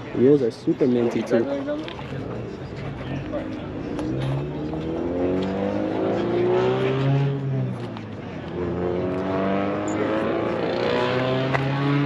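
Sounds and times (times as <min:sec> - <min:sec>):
car engine revving: 0:03.4 - 0:07.9, 0:08.5 - 0:12.0.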